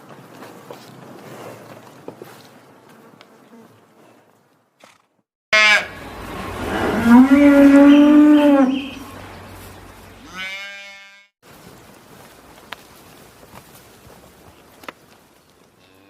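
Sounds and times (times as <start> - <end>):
cow mooing: 5.6 - 9.2, 10.2 - 11.3.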